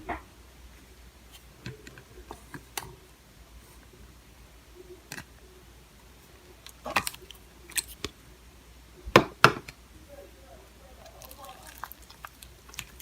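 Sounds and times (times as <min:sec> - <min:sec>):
slime squelching and clicking: 0:06.3 - 0:08.2, 0:11.0 - 0:13.0.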